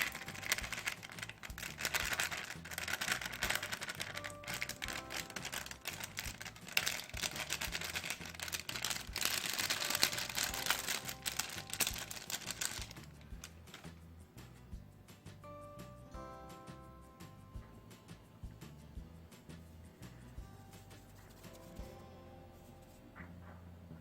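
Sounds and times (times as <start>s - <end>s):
soft background music: 0.0s - 24.0s.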